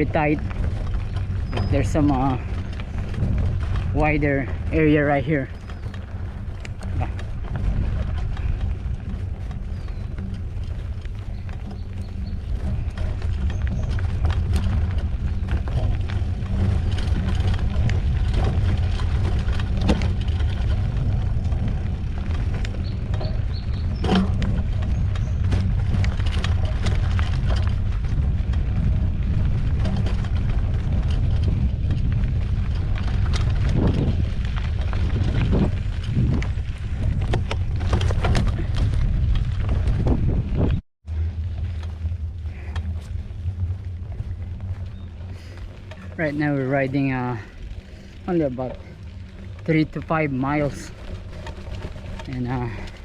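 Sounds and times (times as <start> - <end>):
bike clicking and rattling: 0.0 - 53.0
bike tyres rumbling on dirt: 0.0 - 53.0
wind on microphone: 0.0 - 53.0.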